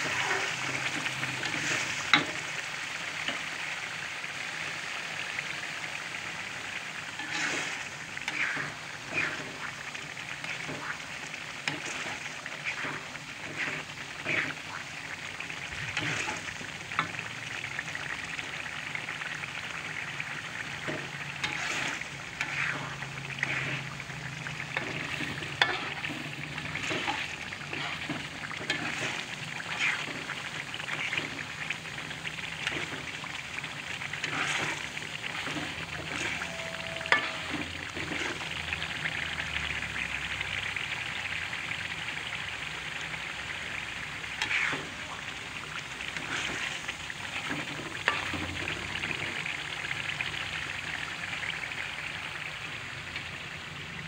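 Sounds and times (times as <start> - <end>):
spatula scraping and knocking pan: 0.0 - 2.4, 10.4 - 11.0, 20.8 - 24.0, 24.6 - 31.4, 34.1 - 38.4
sauce sizzling and bubbling: 0.0 - 54.0.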